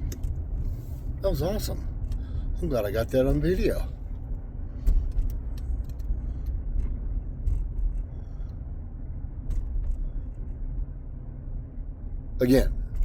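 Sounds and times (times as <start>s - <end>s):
car engine and road rumble: 0.0s - 13.0s
light clicks and rattles: 3.1s - 8.6s.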